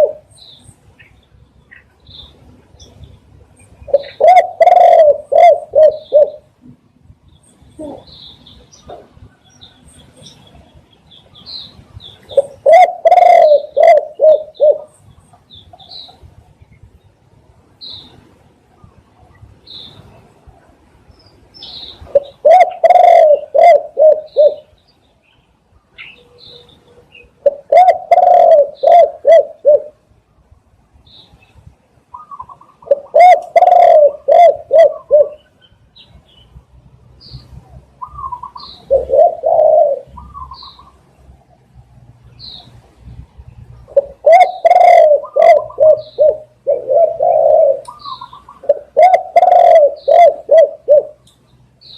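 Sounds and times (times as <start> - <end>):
dove cooing: 0.0 - 0.3, 3.8 - 6.5, 7.8 - 8.2, 12.3 - 15.0, 22.0 - 24.7, 27.4 - 30.0, 32.1 - 35.5, 37.5 - 41.0, 43.8 - 51.2
small birds chirping: 0.0 - 20.4, 21.0 - 29.6, 31.0 - 51.9.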